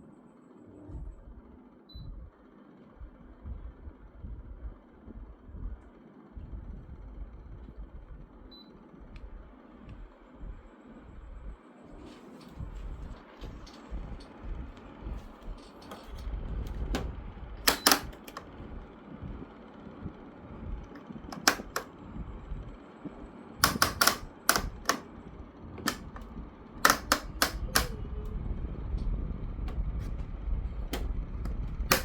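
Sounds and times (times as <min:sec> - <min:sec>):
steady low rumble: 0:00.6 - 0:32.0
plastic louvers clicking: 0:21.3 - 0:21.9, 0:23.6 - 0:25.0, 0:25.8 - 0:26.2, 0:26.8 - 0:28.0.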